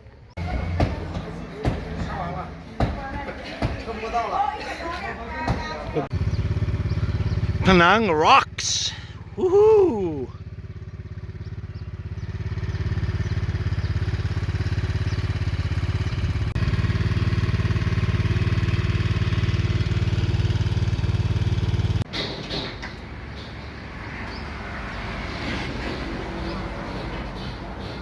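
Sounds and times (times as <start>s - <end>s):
motorcycle engine running: 0.3s - 2.5s, 5.8s - 22.0s.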